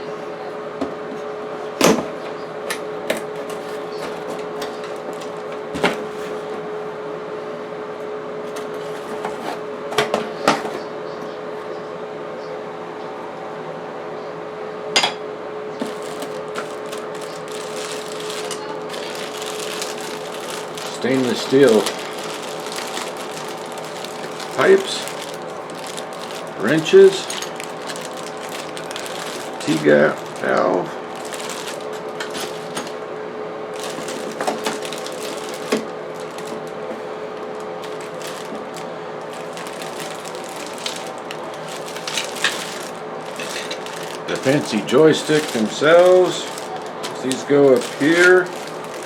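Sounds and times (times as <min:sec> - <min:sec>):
exhaust fan humming: 0:00.0 - 0:11.6, 0:14.2 - 0:49.0
rustling and handling packaging: 0:02.9 - 0:06.8, 0:08.4 - 0:10.9, 0:15.8 - 0:33.1, 0:33.7 - 0:49.0.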